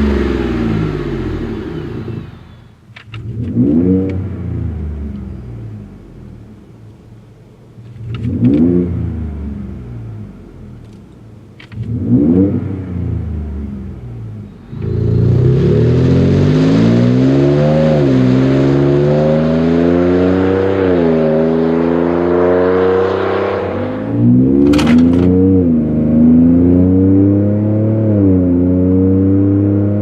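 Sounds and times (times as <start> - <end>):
truck engine revving and accelerating: 0.0 - 2.6, 3.2 - 5.8, 11.8 - 30.0.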